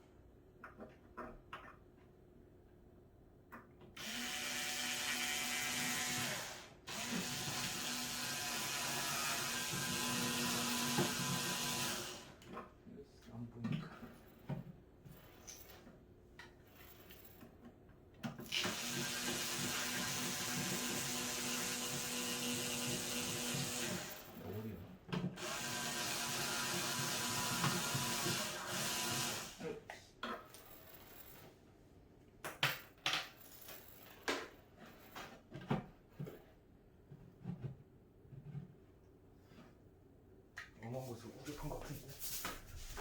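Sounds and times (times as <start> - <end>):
small electric motor humming: 4.0 - 12.3, 25.4 - 29.6.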